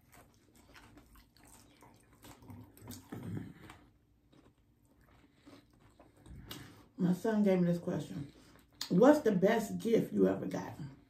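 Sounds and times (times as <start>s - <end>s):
chewing and mouth noises: 0.0s - 7.0s, 8.2s - 9.0s.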